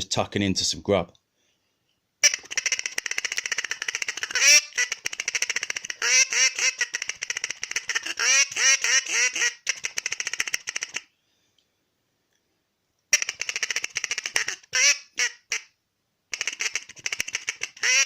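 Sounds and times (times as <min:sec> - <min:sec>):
duck call feed chatter: 0:02.2 - 0:11.0, 0:13.2 - 0:15.6, 0:16.3 - 0:18.0.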